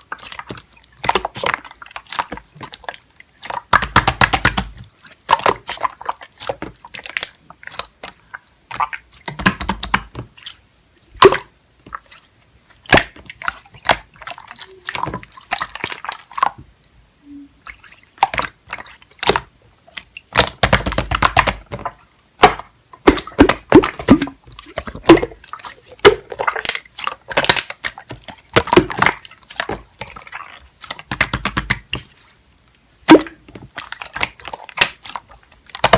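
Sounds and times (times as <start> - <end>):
slime squelching by hand: 0.0 - 35.9.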